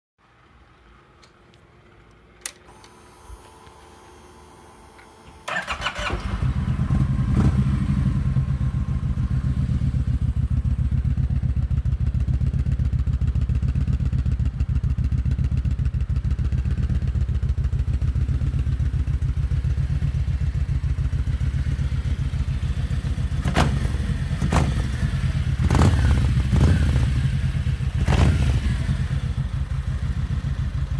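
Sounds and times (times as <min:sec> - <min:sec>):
click: 0:01.2 - 0:03.8
motorcycle engine starting and idling: 0:02.3 - 0:30.9
motorcycle throttle blips: 0:04.8 - 0:30.9.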